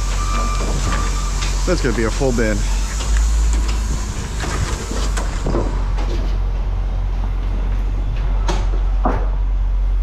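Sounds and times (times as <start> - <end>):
heavy vehicle engine rumbling: 0.0 - 10.0
knocks and clanks: 2.9 - 6.7, 7.5 - 9.5.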